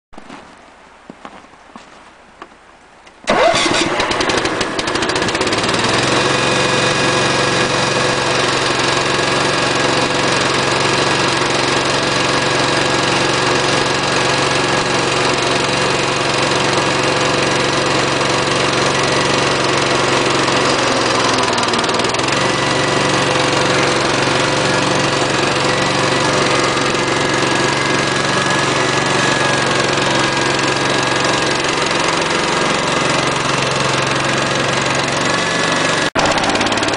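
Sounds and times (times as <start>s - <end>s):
small tractor engine starting and running: 3.2s - 36.9s.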